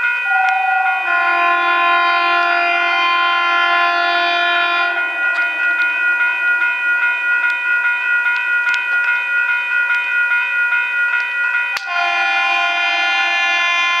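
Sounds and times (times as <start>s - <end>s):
train air horn chord: 0.3s - 6.0s, 11.8s - 14.0s.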